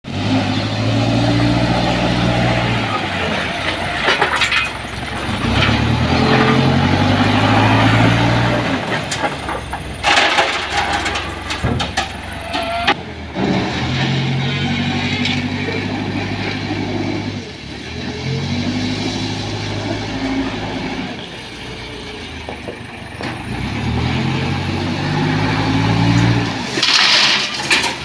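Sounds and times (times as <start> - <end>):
diesel engine revving: 0.0 - 28.0
rattling clattering impacts: 3.6 - 6.5, 8.5 - 14.1, 26.2 - 28.0.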